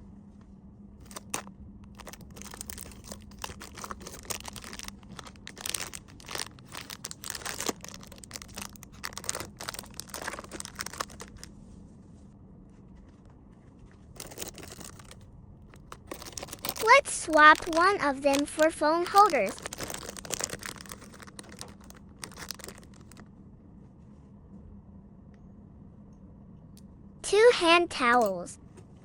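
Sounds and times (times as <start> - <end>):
faint steady hum: 0.0 - 29.0
plastic crinkling and rustling: 1.0 - 11.5, 14.0 - 23.3.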